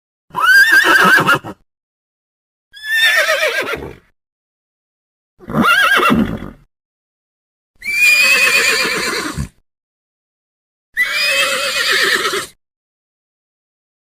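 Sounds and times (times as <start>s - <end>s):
horse whinnying: 0.3s - 1.6s, 2.8s - 4.0s, 5.4s - 6.7s, 7.8s - 9.6s, 11.0s - 12.6s.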